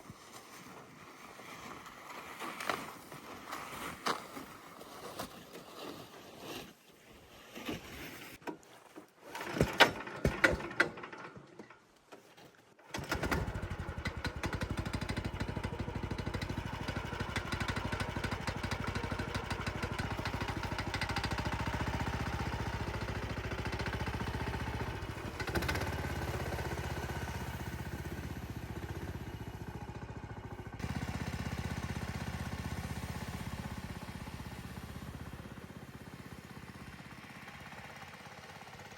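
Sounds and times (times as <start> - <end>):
knocks and clatter: 9.4 - 11.8
small engine running: 12.9 - 38.9.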